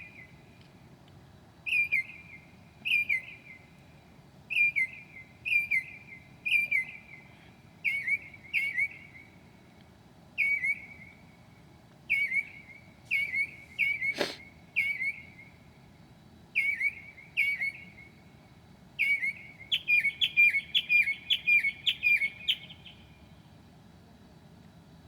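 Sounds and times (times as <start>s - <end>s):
mockingbird singing: 12.1s - 15.3s, 19.0s - 23.0s.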